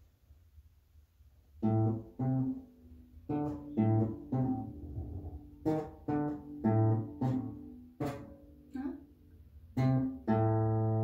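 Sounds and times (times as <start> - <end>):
guitar picking single notes: 3.2 - 9.1, 9.8 - 11.0.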